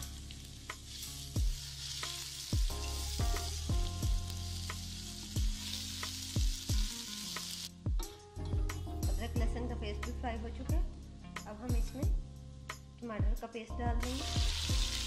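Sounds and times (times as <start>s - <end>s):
onions sizzling in hot oil: 0.0s - 7.8s, 14.0s - 15.0s.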